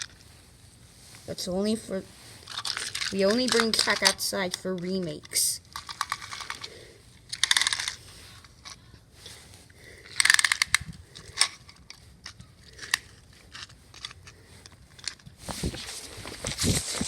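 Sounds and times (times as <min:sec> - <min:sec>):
scraping and crunching: 0:02.0 - 0:17.0
plastic toy trains clicking: 0:02.4 - 0:08.8, 0:10.0 - 0:14.4, 0:15.0 - 0:15.3.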